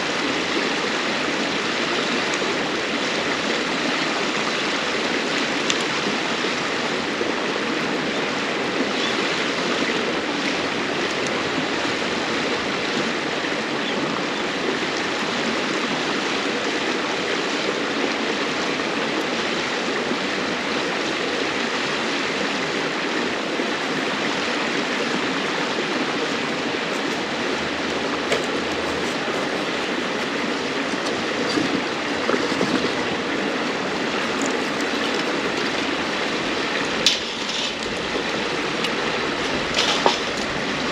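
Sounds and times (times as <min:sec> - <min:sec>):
river water flowing: 0:00.0 - 0:40.9
campfire crackling: 0:23.4 - 0:40.9.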